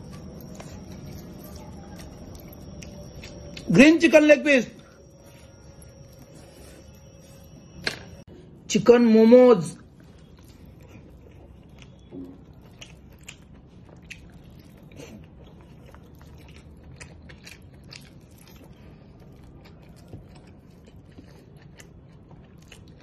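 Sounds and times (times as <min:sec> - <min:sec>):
man chewing: 0:00.0 - 0:03.8, 0:09.8 - 0:23.0.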